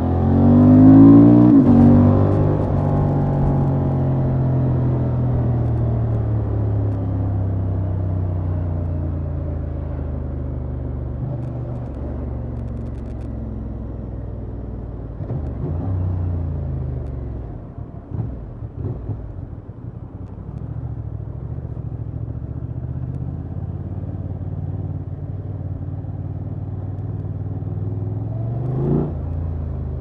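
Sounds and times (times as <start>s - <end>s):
motorcycle engine revving: 0.0s - 8.1s, 15.2s - 17.2s.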